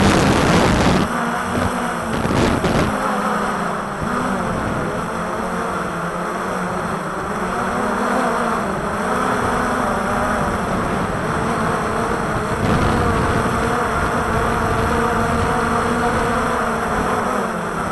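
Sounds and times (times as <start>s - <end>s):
wind buffeting the microphone: 0.0s - 3.0s, 8.7s - 17.9s
drone motors and propellers humming: 0.0s - 17.9s.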